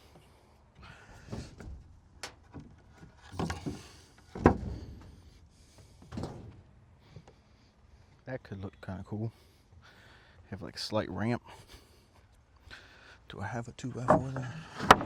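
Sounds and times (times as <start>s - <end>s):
boards scraping: 2.8s - 6.6s, 14.0s - 15.0s
wooden boards knocking: 14.0s - 15.0s.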